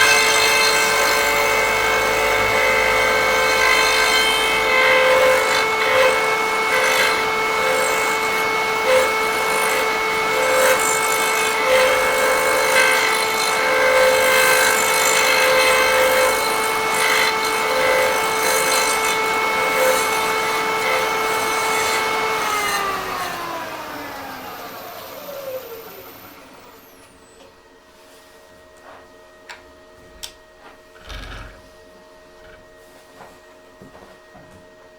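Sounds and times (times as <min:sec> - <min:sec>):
rasping wood cutting: 0:00.0 - 0:25.8
cutter motor whining: 0:00.0 - 0:27.5.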